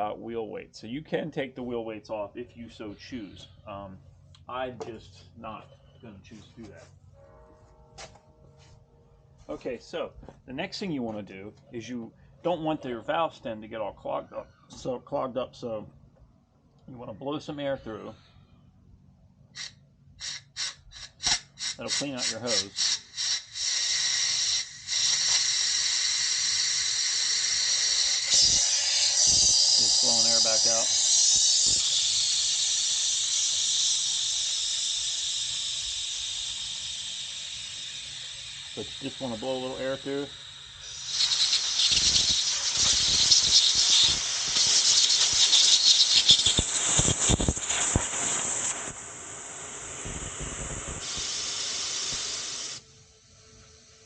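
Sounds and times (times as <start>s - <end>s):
compressed air hissing through valve: 19.5s - 54.0s.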